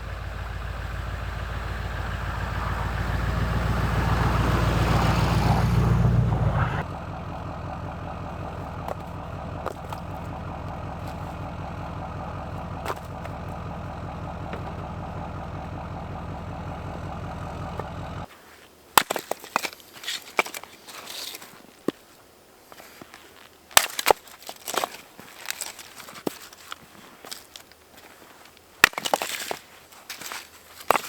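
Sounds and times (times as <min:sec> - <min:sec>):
engine idling: 0:00.0 - 0:18.3.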